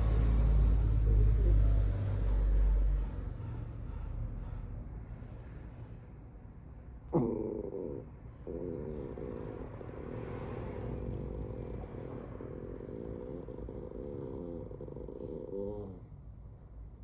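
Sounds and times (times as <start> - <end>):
dog growling: 7.1 - 16.1.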